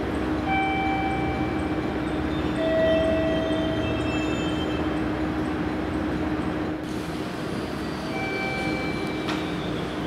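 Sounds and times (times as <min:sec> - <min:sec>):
electric train running: 0:00.0 - 0:10.0.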